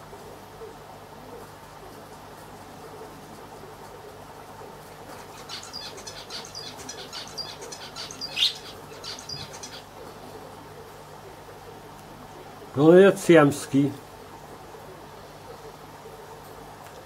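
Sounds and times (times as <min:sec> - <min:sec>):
aquarium equipment hum: 0:00.0 - 0:17.0
small bird chirping: 0:05.2 - 0:10.0.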